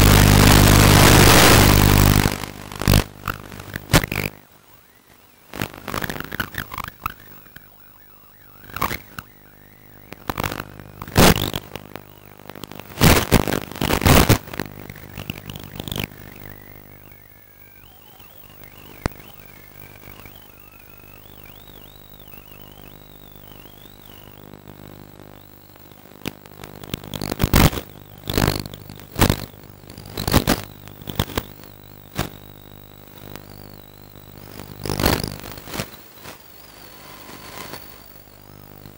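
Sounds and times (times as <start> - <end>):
wavering motor whine: 3.0 - 38.9
model airplane motor drone: 6.6 - 10.3.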